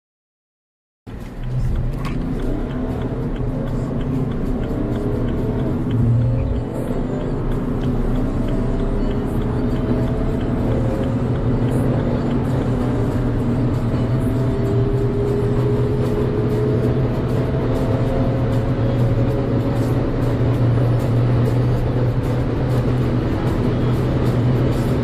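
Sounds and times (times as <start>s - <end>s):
car engine accelerating hard: 1.1s - 25.0s.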